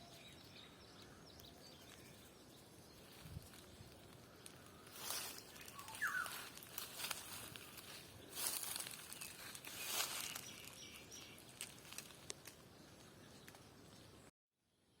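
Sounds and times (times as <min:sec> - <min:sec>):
footsteps crunching on dry ground: 0:01.7 - 0:13.2.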